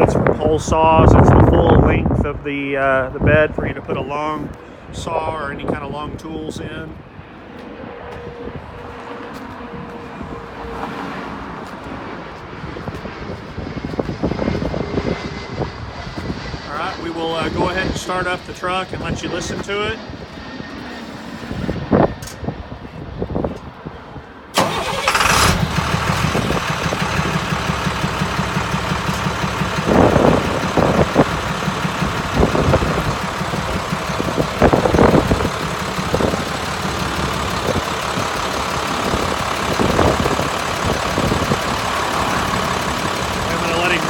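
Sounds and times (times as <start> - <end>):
diesel truck engine starting: 24.5 - 44.0
truck engine idling: 24.6 - 44.0.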